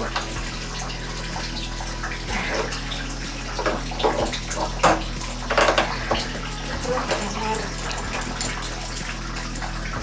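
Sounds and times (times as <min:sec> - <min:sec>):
drain fittings knocking: 0:00.0 - 0:10.0
water draining into bathtub: 0:00.0 - 0:10.0.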